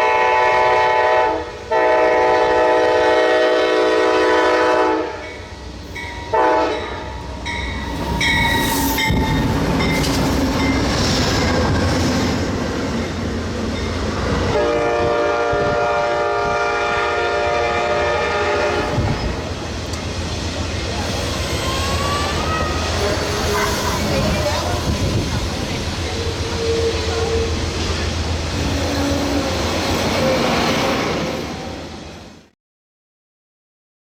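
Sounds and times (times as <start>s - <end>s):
train air horn chord: 0.0s - 5.3s, 6.3s - 7.1s, 14.6s - 19.1s
train wheels rumbling on rails: 1.4s - 32.5s.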